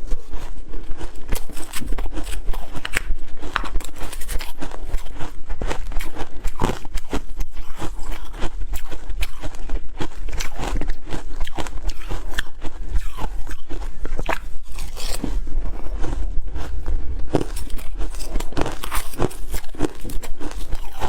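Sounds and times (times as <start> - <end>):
ice being chewed: 0.0 - 21.0.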